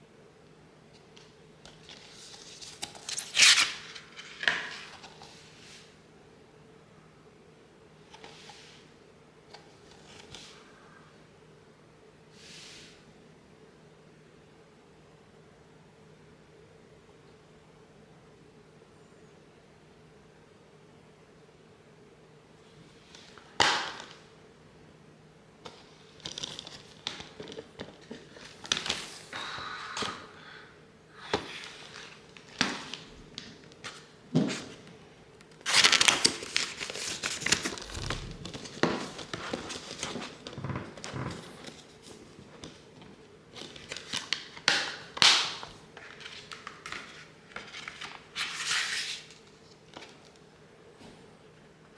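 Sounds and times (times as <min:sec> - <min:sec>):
plastic and cardboard crinkling: 0:35.6 - 0:49.3.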